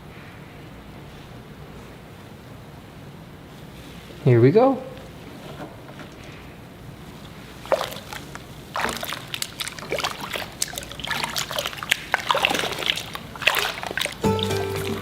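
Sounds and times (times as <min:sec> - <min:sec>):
water splashing in a bath: 0:07.1 - 0:15.0
music: 0:14.2 - 0:15.0.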